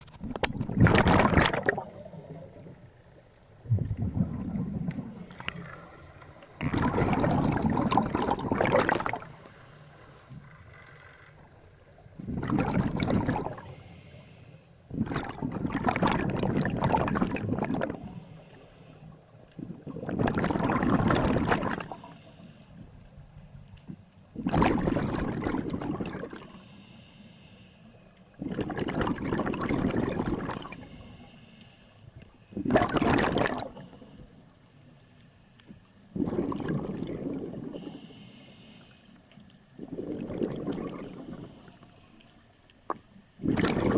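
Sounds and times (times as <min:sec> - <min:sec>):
exhaled bubbles gushing: 0:00.0 - 0:02.8, 0:03.6 - 0:05.8, 0:06.5 - 0:09.4, 0:12.0 - 0:13.7, 0:14.9 - 0:18.1, 0:19.5 - 0:22.0, 0:24.3 - 0:26.5, 0:28.3 - 0:30.9, 0:32.5 - 0:33.9, 0:36.1 - 0:37.9, 0:39.7 - 0:41.5, 0:42.9 - 0:43.9
regulator inhalations: 0:09.2 - 0:10.5, 0:13.6 - 0:14.8, 0:17.9 - 0:19.2, 0:21.8 - 0:22.8, 0:26.4 - 0:28.1, 0:30.6 - 0:32.2, 0:37.7 - 0:39.2, 0:40.9 - 0:42.2.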